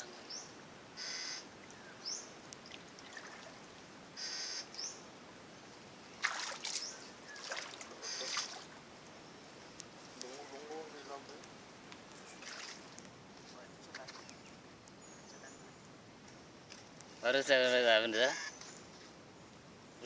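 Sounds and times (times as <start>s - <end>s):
small birds chirping: 0.0s - 20.0s
brief splashing: 6.2s - 8.7s, 12.4s - 13.0s.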